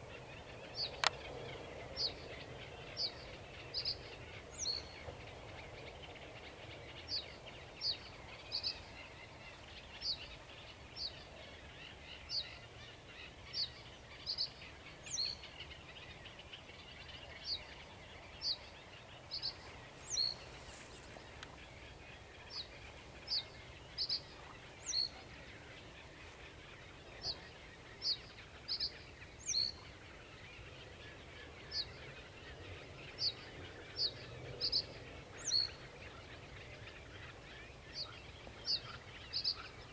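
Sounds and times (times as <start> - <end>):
background hiss: 17.7 - 32.2.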